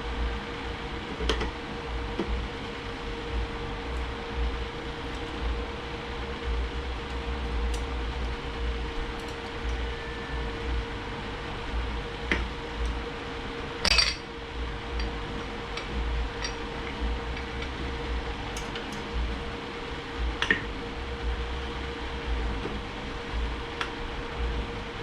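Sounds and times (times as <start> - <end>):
steady hum: 0.0 - 25.0
metal parts and tools clinking: 13.8 - 14.3, 15.0 - 16.6.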